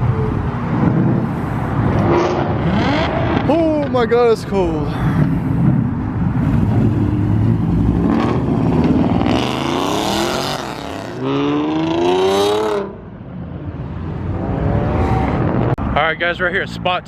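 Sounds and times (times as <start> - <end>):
car engine accelerating: 5.1 - 13.0.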